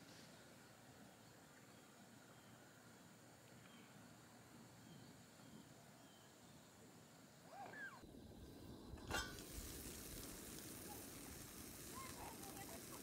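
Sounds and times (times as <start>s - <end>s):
food sizzling in frying pan: 9.0s - 13.0s.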